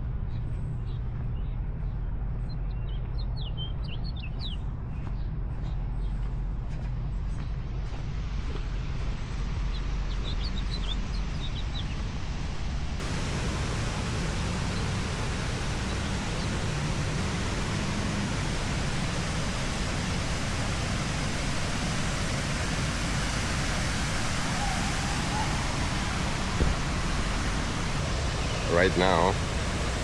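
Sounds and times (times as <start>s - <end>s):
bird chirps: 0.3s - 6.3s, 9.7s - 12.0s, 28.0s - 29.4s
waterfall rushing over rock: 13.0s - 30.0s.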